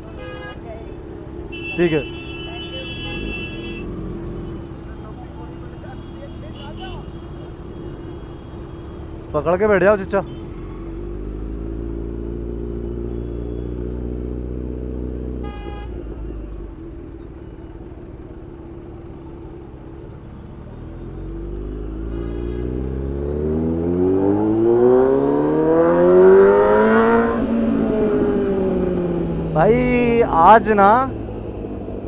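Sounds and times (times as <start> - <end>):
motorcycle horn beep: 1.5 - 3.9, 15.4 - 16.1
motorcycle engine accelerating: 21.3 - 32.0.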